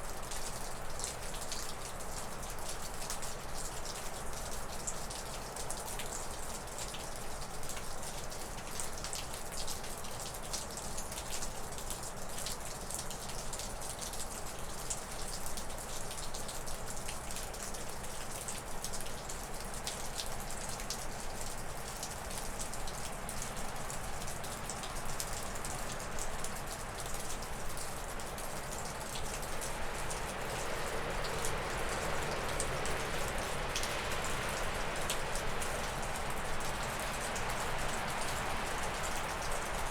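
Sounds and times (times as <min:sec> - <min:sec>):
meltwater dripping off roof: 0:00.0 - 0:39.9
wind rushing through trees: 0:29.3 - 0:39.9.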